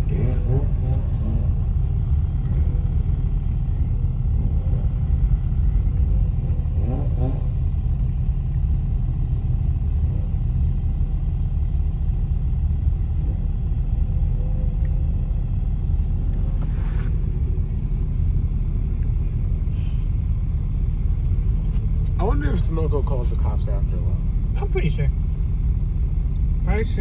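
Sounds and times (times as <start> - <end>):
car engine rumble: 0.0 - 27.0
road noise: 0.0 - 27.0.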